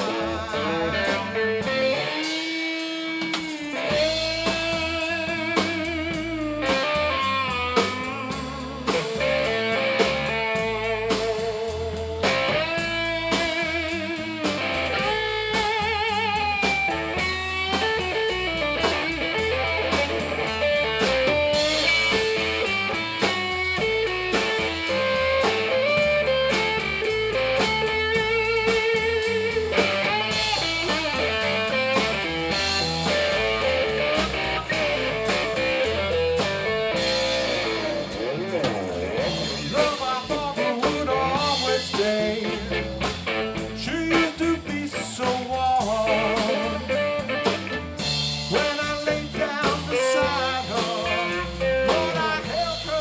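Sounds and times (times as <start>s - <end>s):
electric guitar solo: 0.0s - 5.9s, 9.0s - 40.2s, 46.1s - 48.2s
drums and bass: 0.0s - 53.0s.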